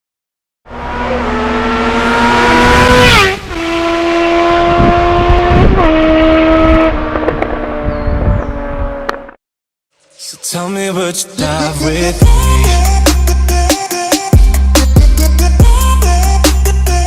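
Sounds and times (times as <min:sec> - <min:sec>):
motorcycle engine accelerating: 0:00.7 - 0:09.4.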